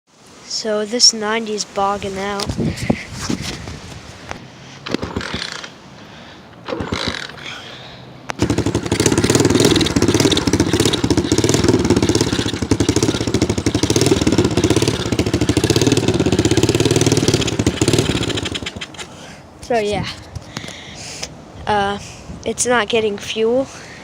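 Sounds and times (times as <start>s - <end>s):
dirt bike engine running: 5.0s - 5.6s, 6.7s - 7.5s, 8.3s - 19.1s.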